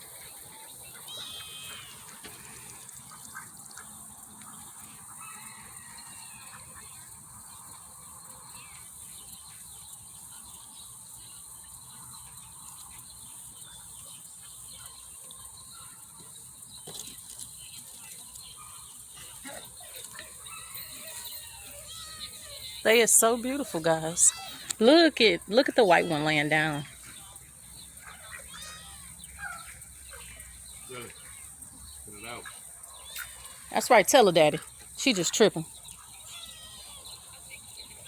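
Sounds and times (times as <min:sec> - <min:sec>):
ducks and geese calling: 0:00.0 - 0:07.2, 0:18.7 - 0:38.0
falling rain hiss: 0:21.9 - 0:37.2.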